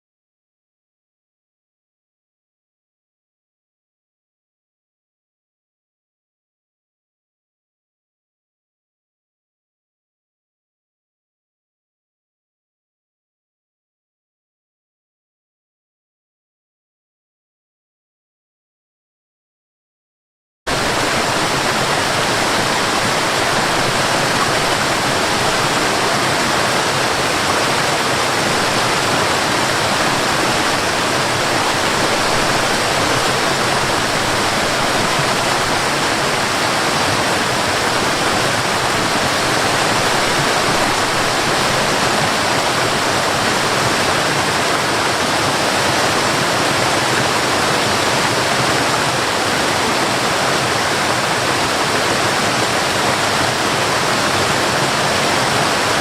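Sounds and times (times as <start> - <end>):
waterfall rushing: 20.7 - 56.0.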